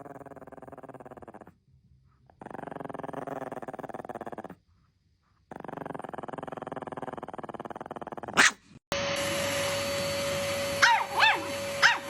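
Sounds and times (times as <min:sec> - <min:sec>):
dog growling: 0:00.0 - 0:01.6, 0:02.2 - 0:04.6, 0:05.5 - 0:08.5.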